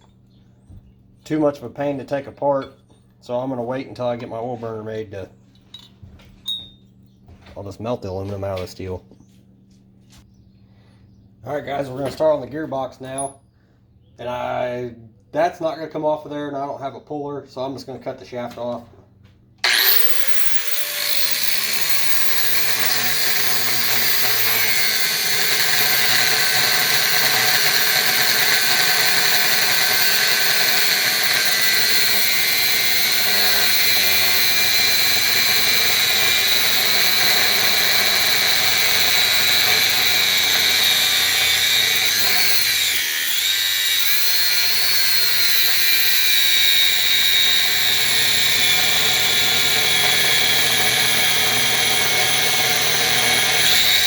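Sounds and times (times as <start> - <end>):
grinder cut-off wheel cutting metal: 19.6 - 54.0.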